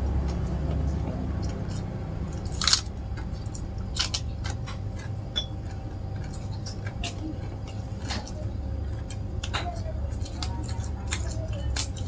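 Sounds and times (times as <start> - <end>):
person chewing crispy food: 0.0 - 12.0.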